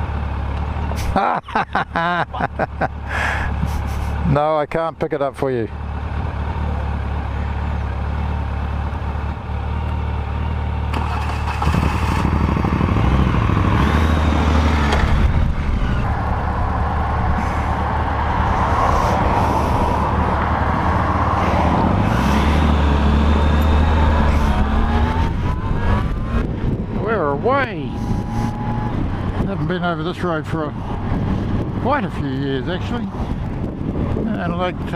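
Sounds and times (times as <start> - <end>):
motorcycle engine accelerating: 5.7 - 34.9
wind rushing over microphone: 14.4 - 34.9.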